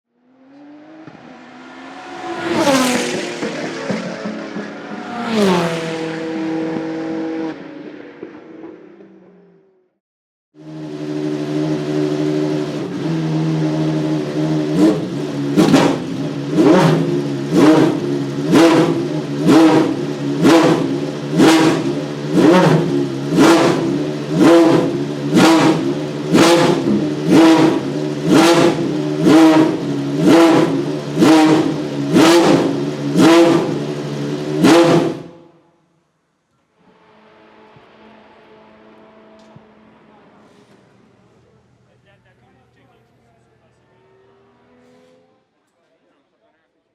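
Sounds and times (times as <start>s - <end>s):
race car engine revving: 0.2s - 9.6s, 10.6s - 35.6s, 36.8s - 45.5s.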